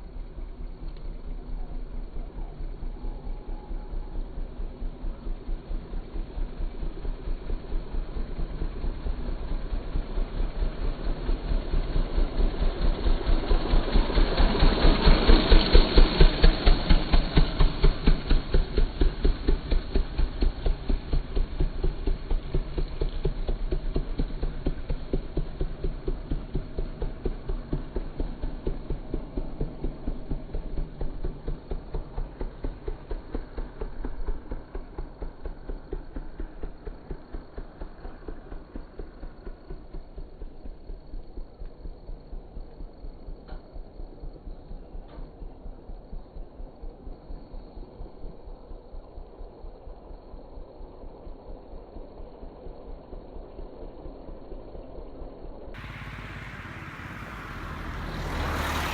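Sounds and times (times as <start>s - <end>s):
motorcycle engine passing by: 1.3s - 43.4s, 55.8s - 58.9s.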